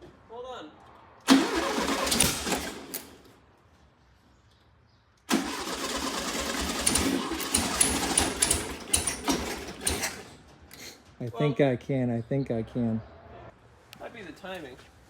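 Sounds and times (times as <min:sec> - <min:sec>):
car engine cranking on starter: 0:01.3 - 0:03.3, 0:05.3 - 0:11.2.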